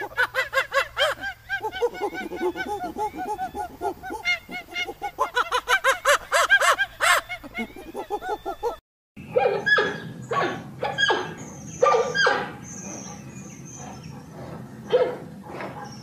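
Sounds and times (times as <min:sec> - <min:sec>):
high arched animal calls: 0:00.0 - 0:08.8.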